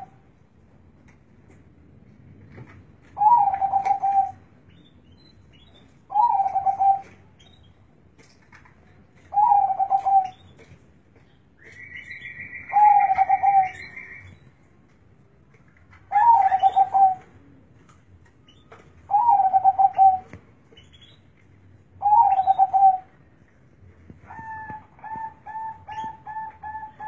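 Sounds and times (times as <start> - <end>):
dove cooing: 3.2 - 4.4, 6.1 - 7.2, 9.3 - 10.4, 12.6 - 14.0, 16.1 - 17.3, 19.1 - 20.3, 22.0 - 23.1, 24.3 - 27.0.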